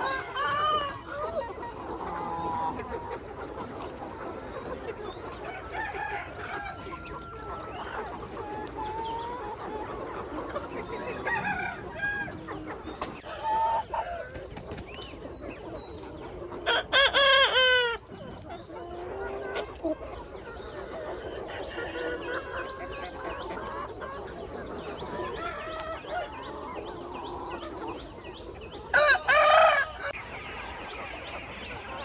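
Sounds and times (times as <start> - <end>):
roosters crowing: 0.0 - 2.7, 5.3 - 8.2, 10.9 - 12.6, 16.6 - 18.0, 25.0 - 26.8, 28.8 - 30.2
chickens clucking: 0.0 - 32.0.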